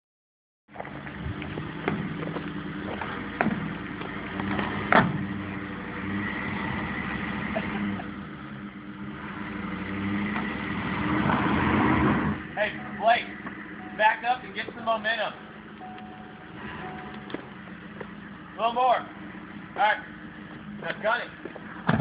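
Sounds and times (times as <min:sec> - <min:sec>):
truck engine idling: 0:00.7 - 0:10.6, 0:12.3 - 0:22.0.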